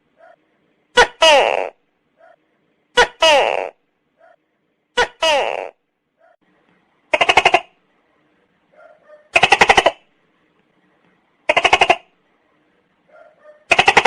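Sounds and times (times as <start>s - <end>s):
gecko rattling calls: 9.4s - 10.0s.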